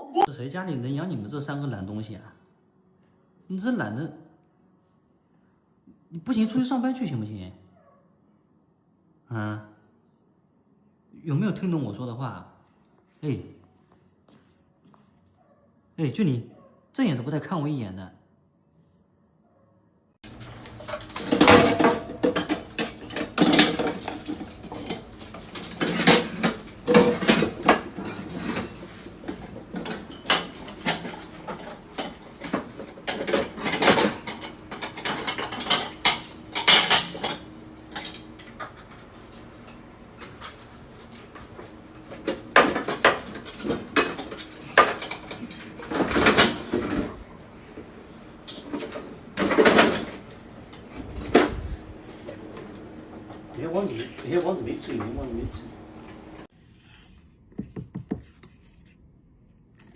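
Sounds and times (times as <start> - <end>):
dishes and utensils clattering: 20.3 - 47.7, 48.5 - 51.5.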